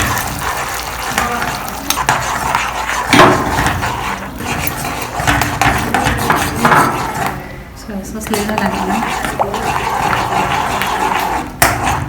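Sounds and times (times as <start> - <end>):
metal spoon scraping a pan: 0.0 - 7.5, 8.1 - 12.0.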